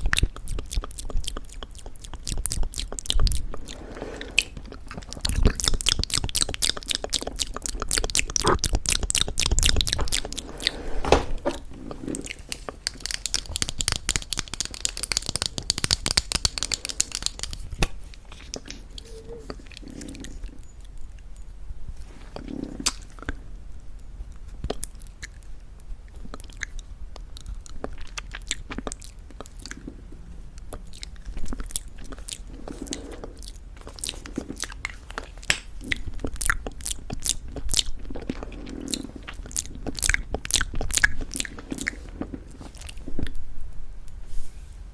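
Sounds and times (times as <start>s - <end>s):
wet mouth clicks: 0.0s - 3.6s, 4.4s - 10.4s, 12.1s - 20.5s, 22.7s - 23.2s
chewing crunchy candy: 0.0s - 3.8s, 4.4s - 10.6s, 11.9s - 20.9s, 26.1s - 43.4s.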